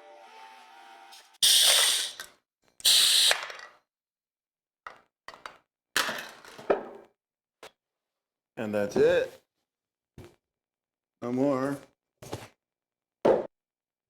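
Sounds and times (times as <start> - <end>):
pneumatic air hissing: 1.4 - 3.5.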